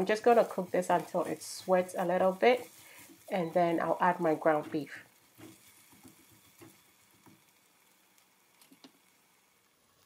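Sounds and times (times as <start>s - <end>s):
onion sizzling in oil: 0.0s - 10.0s
soft crackling ticks: 4.7s - 9.2s.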